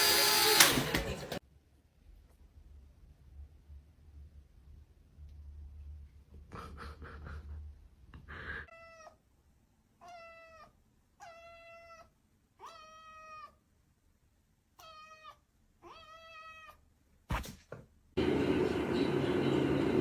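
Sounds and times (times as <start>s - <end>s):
cat meowing faintly: 8.7s - 9.2s, 10.0s - 13.6s, 14.8s - 16.8s.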